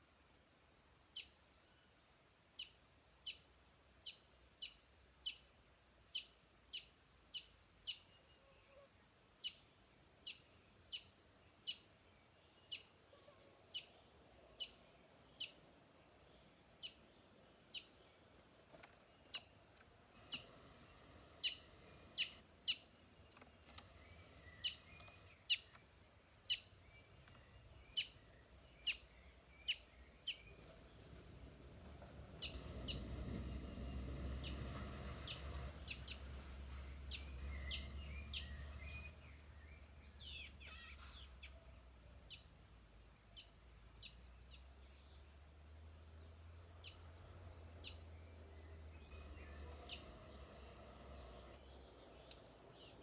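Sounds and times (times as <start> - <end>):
birds chirping and calling: 20.2 - 22.8, 23.7 - 25.8, 32.3 - 41.6, 47.8 - 51.6.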